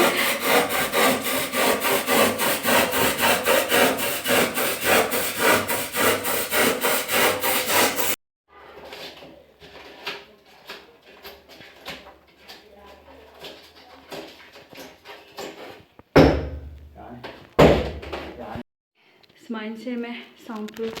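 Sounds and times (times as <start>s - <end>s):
fast scraping strokes: 0.0s - 8.2s.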